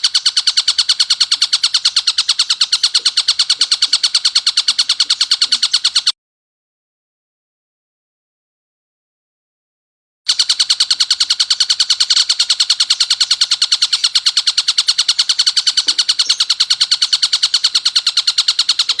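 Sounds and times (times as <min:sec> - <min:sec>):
kingfisher chattering call: 0:00.0 - 0:06.1, 0:15.1 - 0:19.0.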